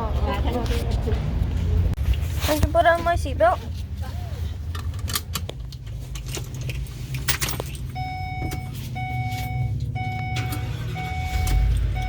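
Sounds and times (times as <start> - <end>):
car warning chime: 7.9 - 12.0.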